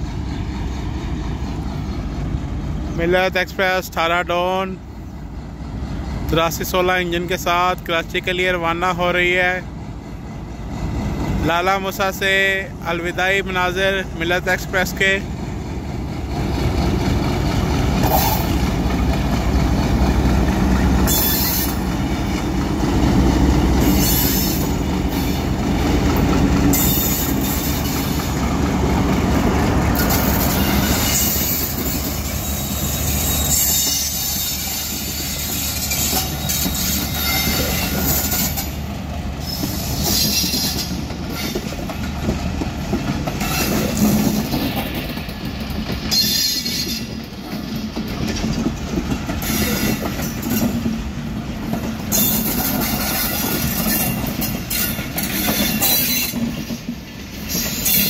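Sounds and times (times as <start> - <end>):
coaches clickety-clack on rails: 0.0 - 58.0
diesel locomotive engine running: 0.0 - 58.0
high wheel squeals: 21.0 - 22.5, 23.8 - 25.5, 26.7 - 28.4, 30.0 - 38.8, 39.4 - 41.7, 46.1 - 47.2, 49.4 - 50.1, 52.1 - 56.4, 57.4 - 58.0.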